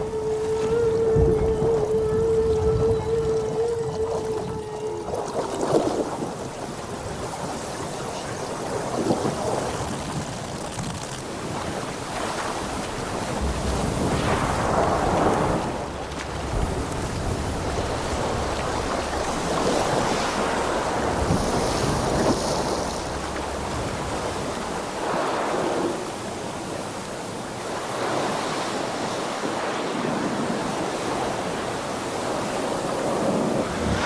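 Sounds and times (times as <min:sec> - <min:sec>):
sea water rushing: 0:00.0 - 0:34.0
low rumble: 0:12.8 - 0:26.6.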